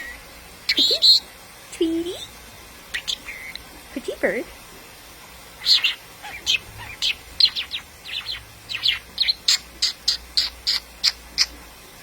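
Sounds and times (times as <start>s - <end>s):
bird chirping: 0.0s - 1.2s, 2.9s - 3.6s, 5.6s - 11.6s.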